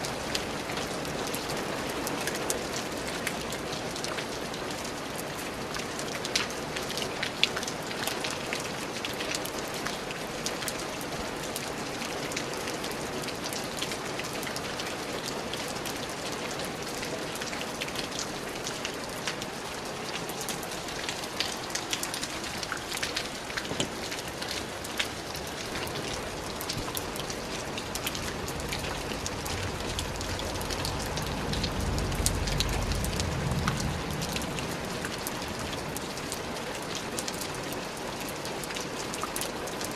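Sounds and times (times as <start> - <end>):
rain falling on a surface: 0.0 - 39.9
low rumble: 27.8 - 35.8.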